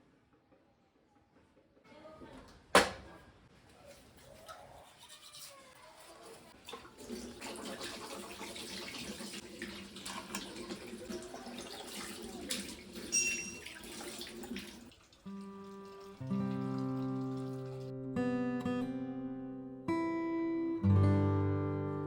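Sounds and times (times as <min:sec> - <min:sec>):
running water splashing: 0:03.8 - 0:17.9.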